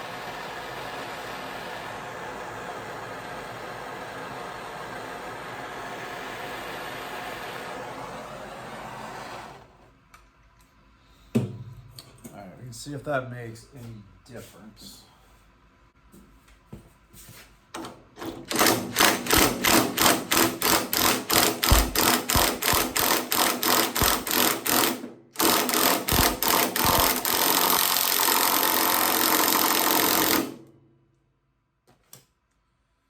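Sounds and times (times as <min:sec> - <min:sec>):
impact wrench hammering: 0:18.3 - 0:30.6.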